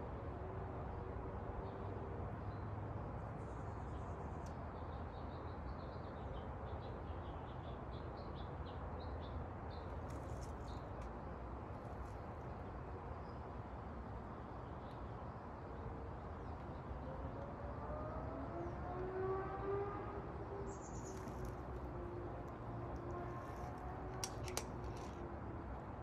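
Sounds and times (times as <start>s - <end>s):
low outdoor hum: 0.0s - 26.0s
small bird chirping: 20.6s - 21.8s.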